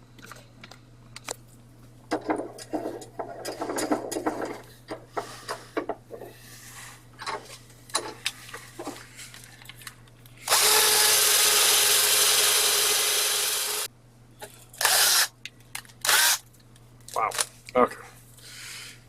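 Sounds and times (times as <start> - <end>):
small power tool running: 10.4 - 13.9, 14.8 - 15.3, 16.1 - 16.4.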